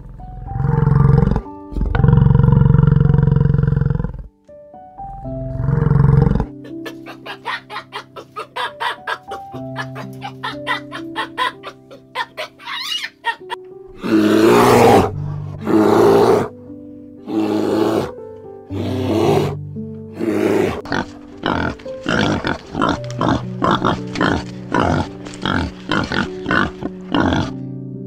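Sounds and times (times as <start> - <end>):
wild boar grunting: 0.0 - 4.3, 5.2 - 7.0, 14.0 - 16.5, 17.2 - 18.1, 18.7 - 19.6, 20.2 - 27.6
soft piano music: 0.0 - 28.0
long harsh animal calls: 5.6 - 16.5, 17.3 - 18.1.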